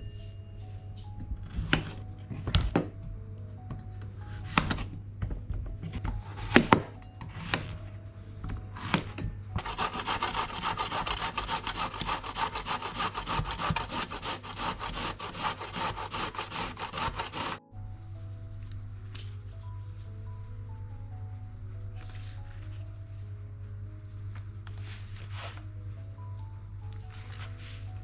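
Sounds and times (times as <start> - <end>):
zucchini scraping on a grater: 8.8 - 17.6.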